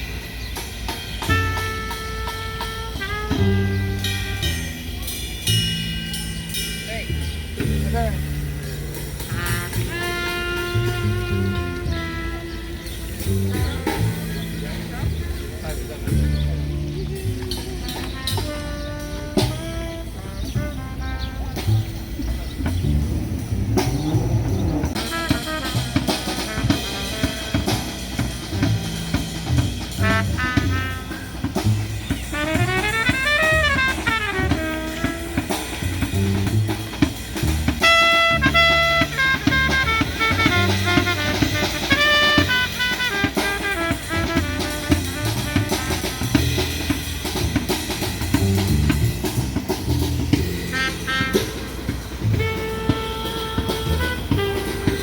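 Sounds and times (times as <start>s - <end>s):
song with drum beat: 0.0s - 55.0s.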